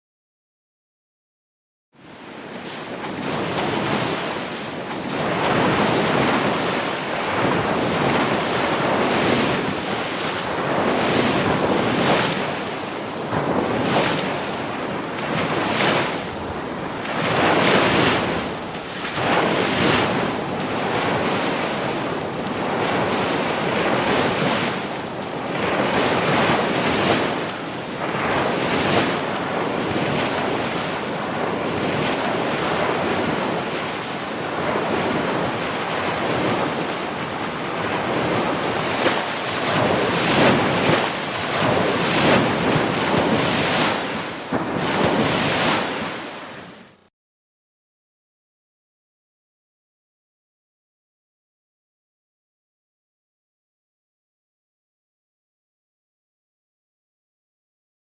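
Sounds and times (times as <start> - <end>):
ocean surf waves breaking: 2.0 - 47.1.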